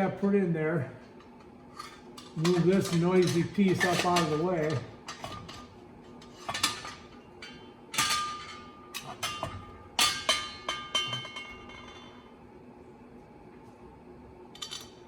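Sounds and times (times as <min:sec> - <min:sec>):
steel parts clinking and knocking: 0:01.8 - 0:12.2.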